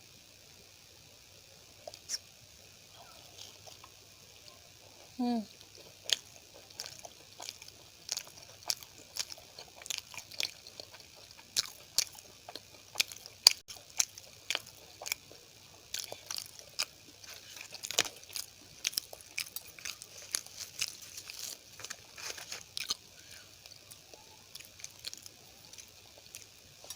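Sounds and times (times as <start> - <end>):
wet mouth clicks: 1.9 - 2.2
close chewing: 3.1 - 26.9.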